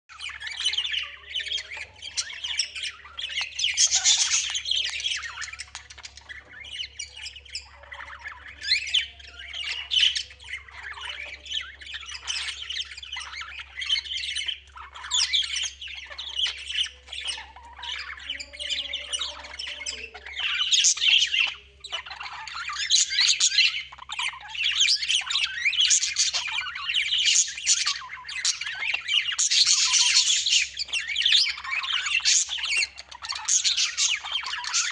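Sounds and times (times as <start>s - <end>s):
birds chirping chorus: 0.0s - 34.9s.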